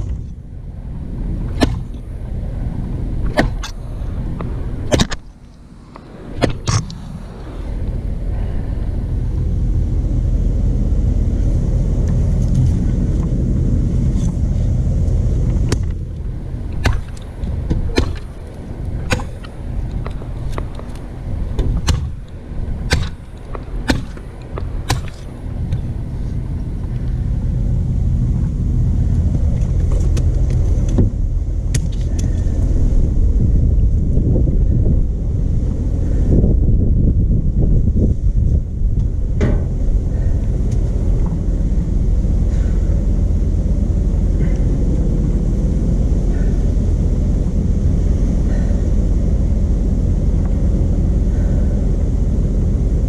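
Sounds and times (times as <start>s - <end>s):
stump grinder engine rumbling: 0.0s - 34.2s
sharp clicks and knocks: 4.4s - 5.3s, 21.6s - 22.2s.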